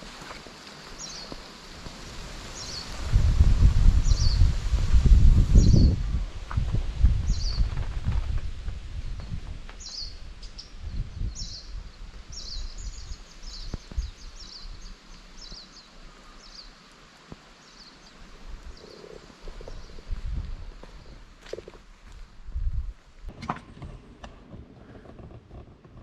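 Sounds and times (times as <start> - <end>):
small bird calling: 17.6 - 20.2.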